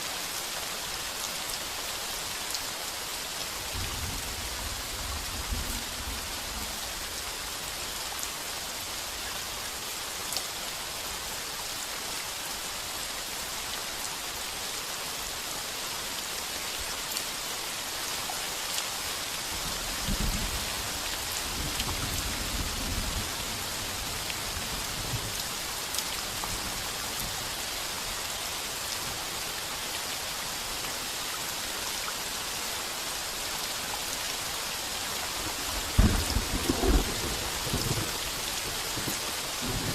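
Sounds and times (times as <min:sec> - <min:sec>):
heavy rain on a tin roof: 0:00.0 - 0:39.9
low rumble of thunder: 0:35.7 - 0:39.9.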